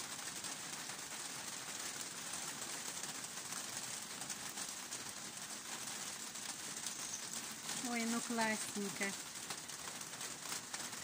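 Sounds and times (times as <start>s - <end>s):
light rain on leaves and paving: 0.0s - 11.0s
birds chirping faintly: 6.7s - 9.2s.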